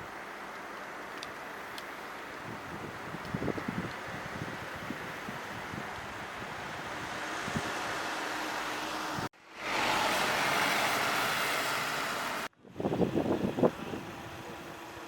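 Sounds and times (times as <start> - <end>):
traffic rushing: 0.0 - 15.0
wind on microphone: 2.4 - 9.3, 12.5 - 15.0.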